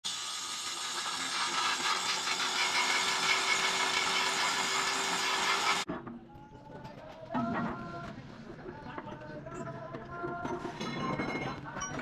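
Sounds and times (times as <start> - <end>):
machinery running: 0.1 - 5.9.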